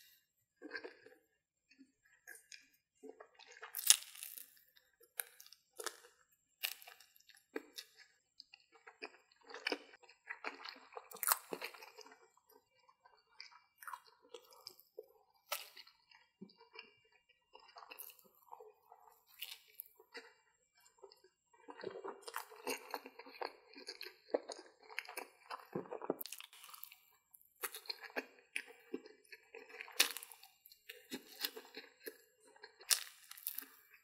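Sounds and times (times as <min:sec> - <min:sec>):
chewing: 0:00.6 - 0:34.0
crisp crunching bites: 0:03.6 - 0:04.6, 0:26.0 - 0:27.0, 0:29.8 - 0:30.4, 0:32.8 - 0:33.8.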